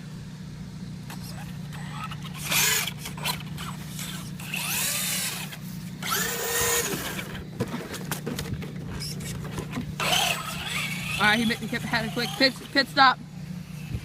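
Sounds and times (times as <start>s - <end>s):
electric motor whining: 0.7s - 14.0s.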